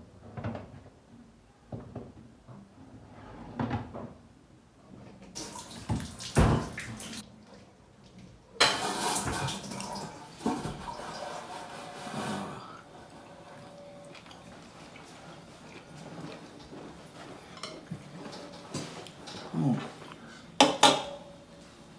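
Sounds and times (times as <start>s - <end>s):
tap water running: 5.4s - 7.2s, 8.6s - 21.9s.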